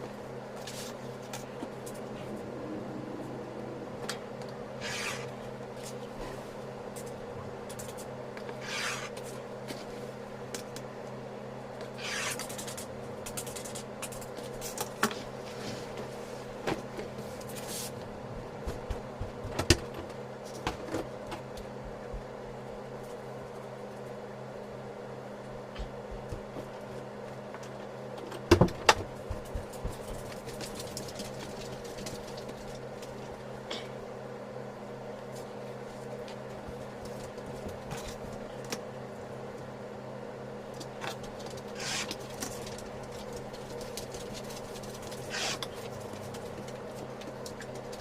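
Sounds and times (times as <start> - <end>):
steady low hum: 0.0 - 48.0
fabric rubbing and scraping: 4.8 - 6.6, 8.6 - 9.1, 12.0 - 12.4, 41.8 - 42.1, 45.2 - 45.7.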